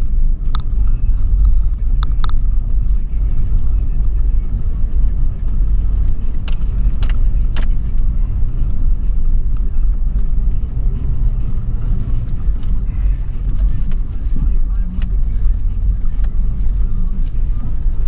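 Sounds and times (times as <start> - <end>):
car engine and tyres rumbling: 0.0 - 18.0
sharp clicks: 0.4 - 2.8, 5.9 - 10.4.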